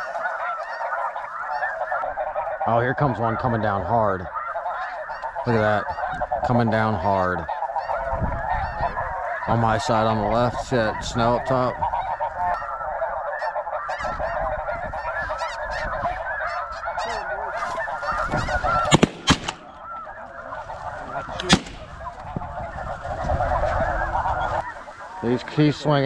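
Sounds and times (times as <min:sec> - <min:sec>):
geese calling and honking: 0:00.0 - 0:26.0
sharp cracks: 0:18.7 - 0:20.1, 0:21.4 - 0:22.3.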